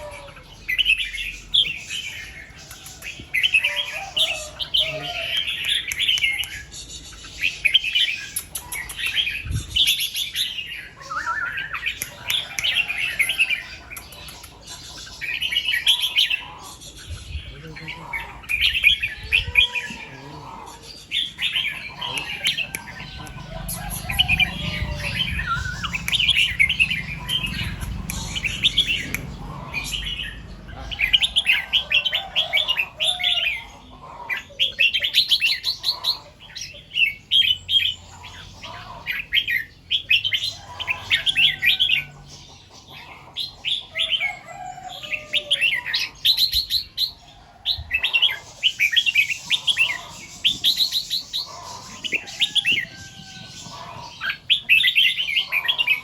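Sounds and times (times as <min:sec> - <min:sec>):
bird singing warbled phrases: 0:00.0 - 0:56.0
low rumble: 0:22.9 - 0:31.4.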